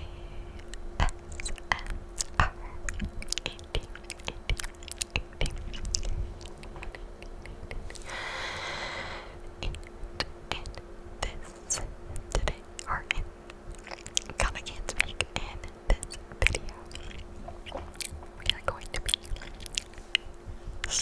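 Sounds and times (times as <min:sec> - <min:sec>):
wet mouth clicks: 0:00.7 - 0:08.0, 0:13.7 - 0:20.3.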